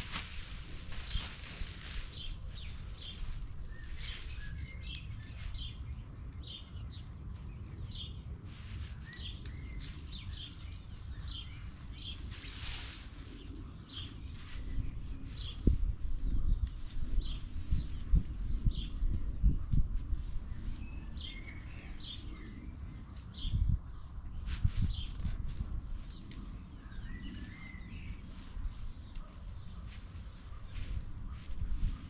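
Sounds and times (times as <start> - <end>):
brief rustle: 0.0 - 3.3, 24.4 - 26.4
small bird chirping: 0.9 - 32.0.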